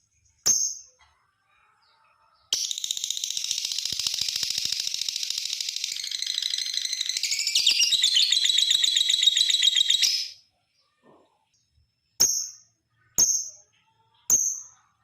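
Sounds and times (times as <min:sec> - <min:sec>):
lovebird chattering call: 0:02.6 - 0:10.4.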